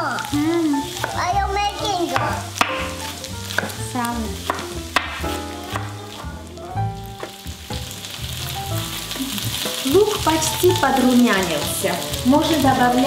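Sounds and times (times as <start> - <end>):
onions sizzling in oil: 0.0 - 13.0
knife chopping on wooden board: 2.1 - 3.8, 4.4 - 6.0.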